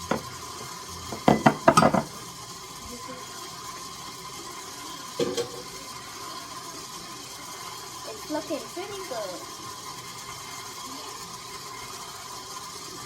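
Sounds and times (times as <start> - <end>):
utensil knocking against mixing bowl: 0.1 - 0.3, 1.1 - 2.2.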